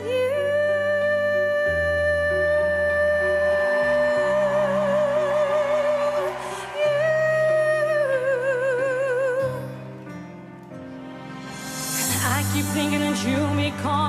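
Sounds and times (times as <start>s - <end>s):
woman singing with vibrato: 0.0s - 9.7s, 12.0s - 14.0s
backing track music: 9.4s - 14.0s.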